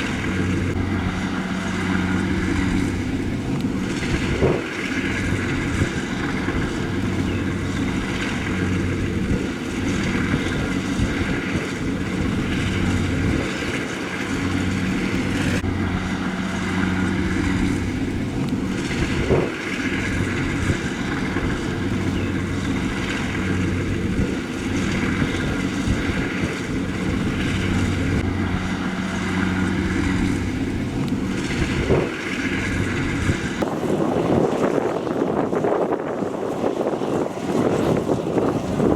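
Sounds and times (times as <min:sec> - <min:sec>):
harvester engine humming: 0:00.0 - 0:38.9.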